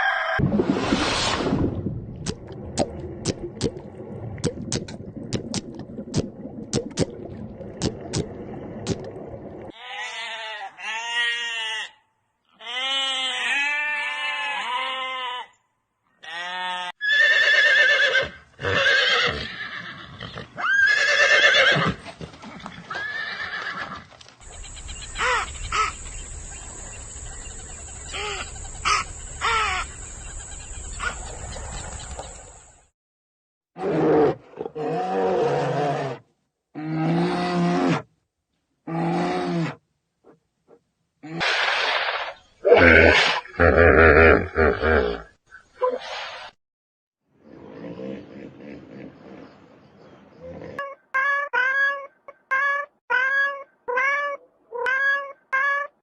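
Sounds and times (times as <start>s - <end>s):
animal calls: 24.4s - 26.2s.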